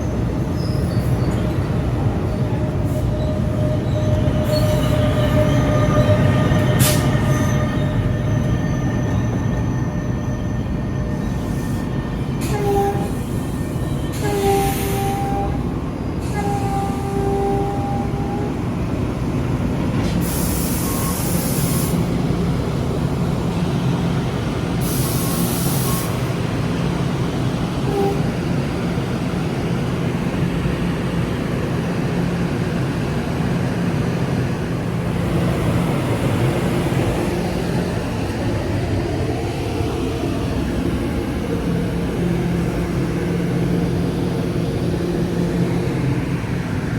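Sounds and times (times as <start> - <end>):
train rumbling past: 0.0 - 46.9
train horn: 12.4 - 13.3, 14.1 - 18.6, 27.9 - 28.4.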